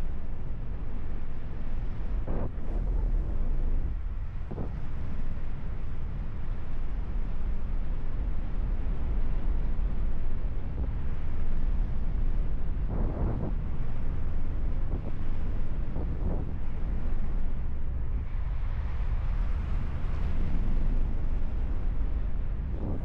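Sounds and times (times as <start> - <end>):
wind buffeting microphone: 8.7 - 23.0.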